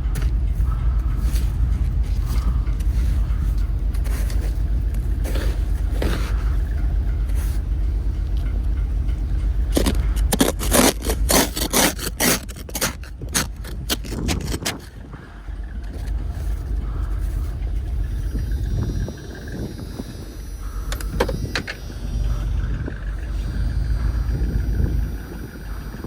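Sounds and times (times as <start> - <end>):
sharp scraping and crunching: 0.0 - 7.7, 9.7 - 19.7
engine idling: 0.0 - 26.0.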